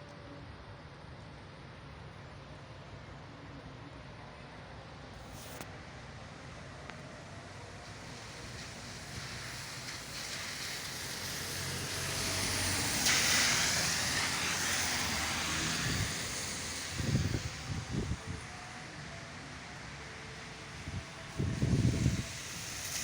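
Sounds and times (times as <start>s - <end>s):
tyre hiss on wet road: 5.2s - 23.0s
wind buffeting microphone: 9.0s - 18.5s, 20.8s - 23.0s.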